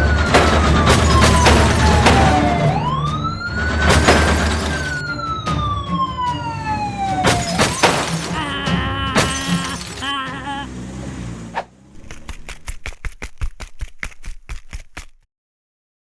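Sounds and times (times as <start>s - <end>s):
police siren wailing: 0.0s - 10.9s
sharp crashes or knocks: 1.1s - 3.0s, 7.5s - 8.5s.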